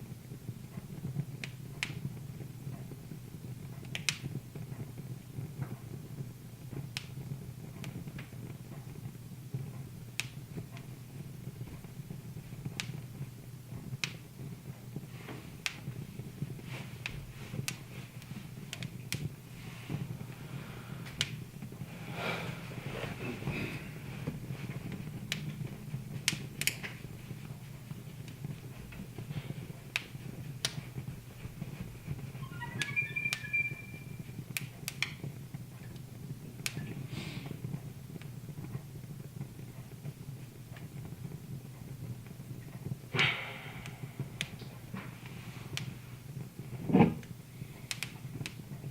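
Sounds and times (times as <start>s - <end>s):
wood fire crackling: 0.0s - 48.9s
steady low hum: 4.4s - 32.5s, 37.5s - 47.8s
high whistle: 32.4s - 34.3s.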